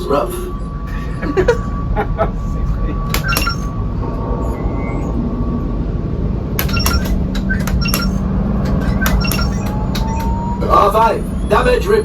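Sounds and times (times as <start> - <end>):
steady hum: 0.0 - 11.4
deep steady rumble: 0.0 - 12.0
sharp clicks and clinks: 3.2 - 3.7, 6.6 - 10.4.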